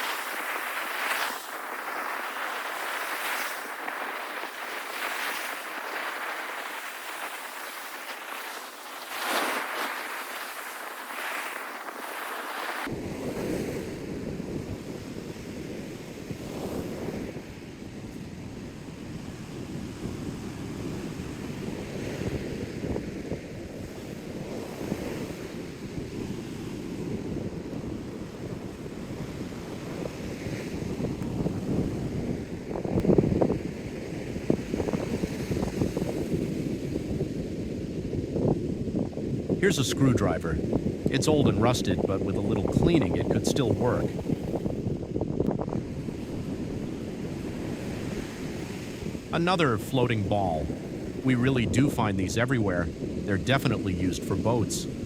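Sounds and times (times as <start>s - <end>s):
surf washing on a beach: 0.0s - 55.0s
wind: 0.0s - 55.0s.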